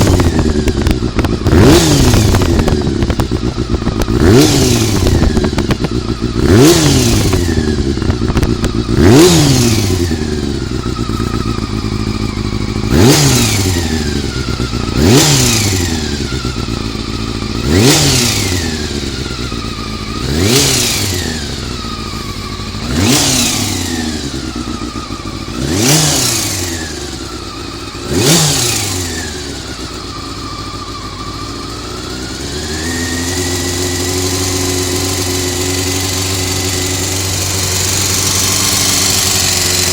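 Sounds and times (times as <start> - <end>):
motorcycle engine idling: 0.0 - 39.9
motorcycle engine revving: 0.0 - 39.9.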